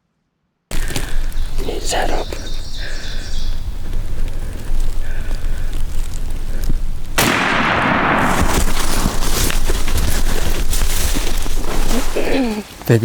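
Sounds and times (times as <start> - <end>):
loud rustling: 0.7 - 13.0
shotgun shot with ringing tail: 7.2 - 9.6.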